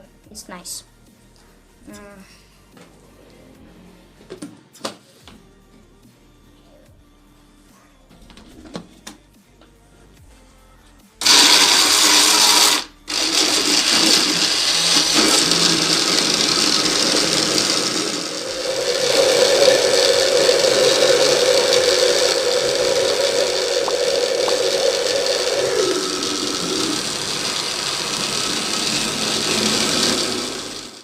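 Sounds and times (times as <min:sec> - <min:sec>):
blender running: 0:11.2 - 0:31.0
motor hum: 0:11.2 - 0:31.0.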